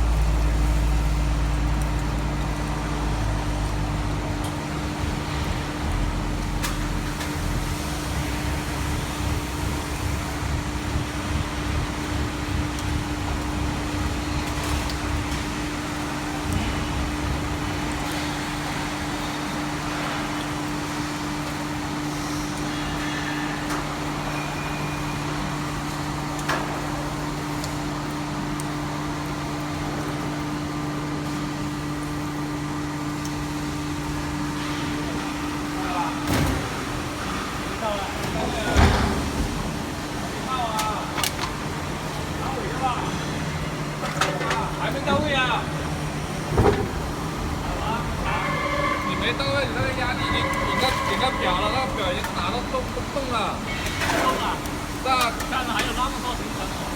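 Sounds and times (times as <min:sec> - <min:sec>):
hydraulic power unit humming: 0:00.0 - 0:56.9
low rumble: 0:05.0 - 0:15.6.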